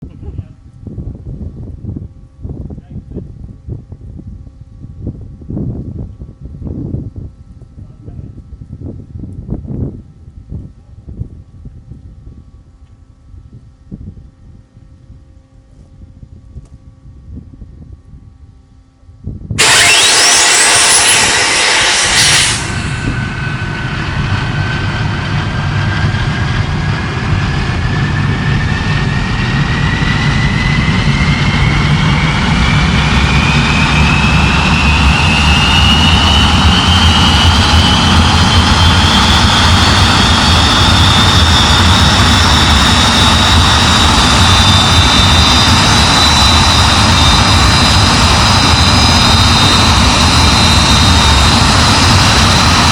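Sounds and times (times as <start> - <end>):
jet engine whine: 19.2 - 52.9
explosive starter blast: 19.6 - 52.9.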